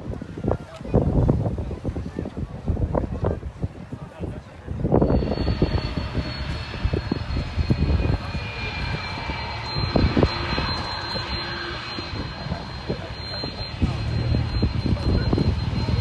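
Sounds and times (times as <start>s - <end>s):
jet engines roaring: 4.6s - 16.0s
high engine whine: 4.8s - 16.0s.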